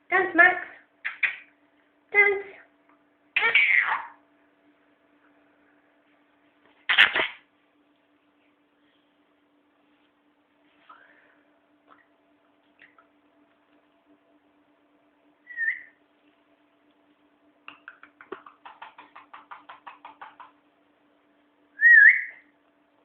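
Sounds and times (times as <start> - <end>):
parrot whistling: 15.4 - 16.0, 21.8 - 22.5.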